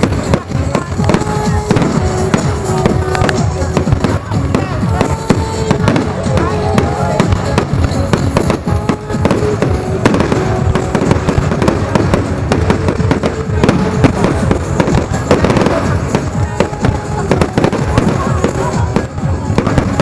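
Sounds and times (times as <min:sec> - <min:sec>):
faint music: 0:00.0 - 0:20.0
faint voices: 0:00.0 - 0:20.0
fireworks banging and crackling: 0:00.0 - 0:20.0.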